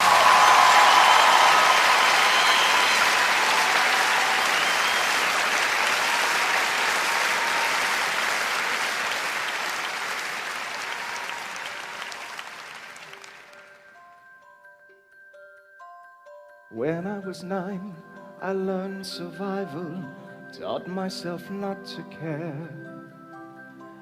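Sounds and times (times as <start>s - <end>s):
audience applauding: 0.0s - 14.0s
bell-like mallet instrument notes: 10.5s - 24.0s.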